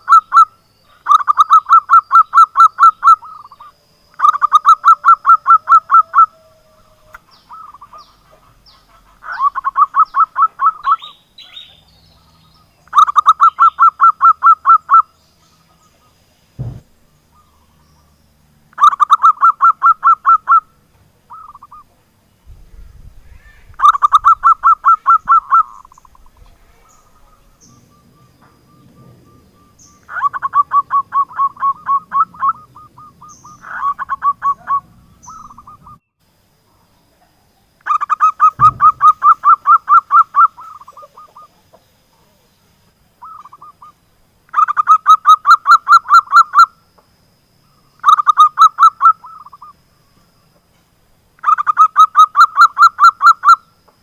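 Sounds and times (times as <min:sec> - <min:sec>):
dove cooing: 0:00.0 - 0:11.7, 0:22.6 - 0:36.0, 0:37.8 - 0:41.8.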